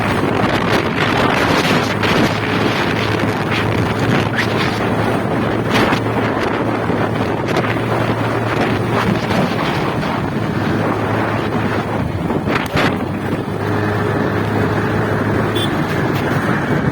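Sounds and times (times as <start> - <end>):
motorcycle engine hum: 0.0 - 16.9
wind buffeting microphone: 0.0 - 16.9.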